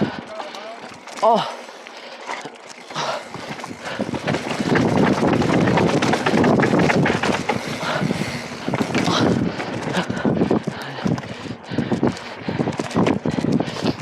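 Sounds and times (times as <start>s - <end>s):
bike clicks and rattles: 2.2s - 14.0s
wind rushing over microphone: 3.3s - 14.0s.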